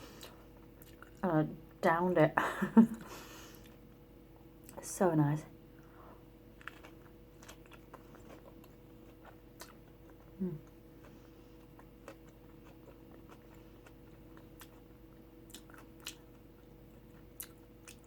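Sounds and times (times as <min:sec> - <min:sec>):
person chewing food: 0:00.1 - 0:01.2, 0:06.5 - 0:18.0
person humming: 0:10.4 - 0:10.7.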